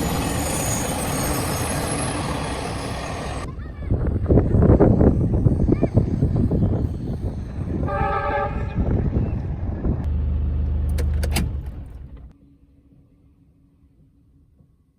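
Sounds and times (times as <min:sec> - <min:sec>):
train rumbling along track: 0:00.0 - 0:12.4
locomotive horn: 0:07.8 - 0:09.0.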